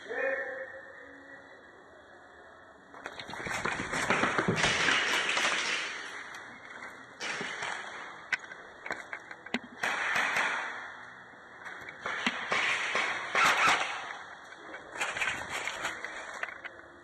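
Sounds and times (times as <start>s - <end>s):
airsoft guns firing: 3.2s - 16.6s.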